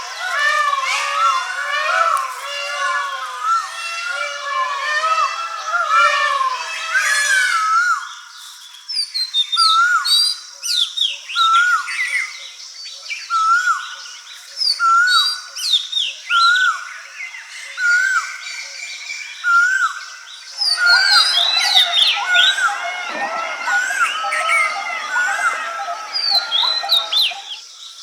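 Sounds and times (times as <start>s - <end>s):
birds chirping and trilling: 0.0s - 7.4s, 17.0s - 28.0s
bird whistling rising and falling: 20.6s - 27.6s.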